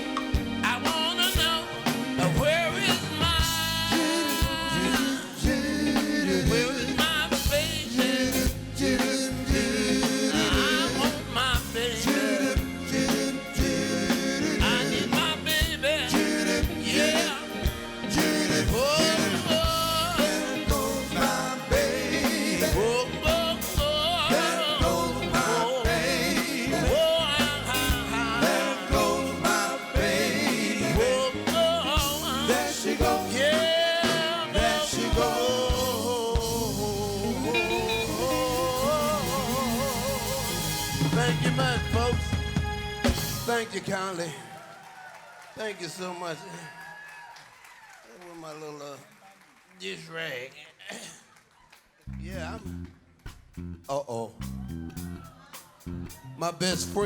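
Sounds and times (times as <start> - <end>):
live soul band playing: 0.0 - 44.1, 54.4 - 57.0
wavering lead vocal: 0.0 - 44.4.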